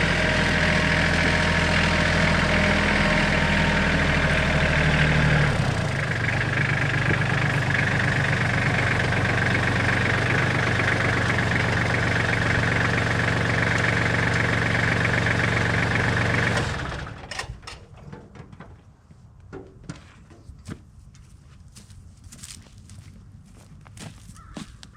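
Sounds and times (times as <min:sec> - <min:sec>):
engine idling: 0:00.0 - 0:17.6.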